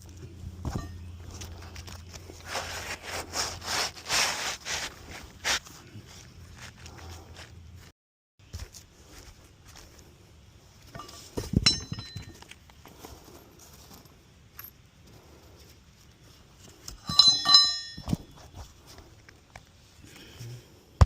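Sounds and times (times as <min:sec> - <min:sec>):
metal clinking: 0:10.9 - 0:12.5, 0:17.0 - 0:18.3.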